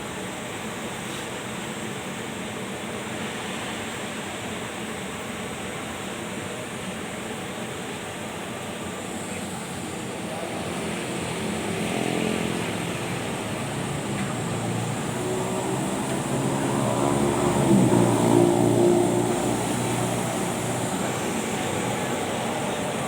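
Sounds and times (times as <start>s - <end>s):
machine rushing hum: 12.4s - 23.0s.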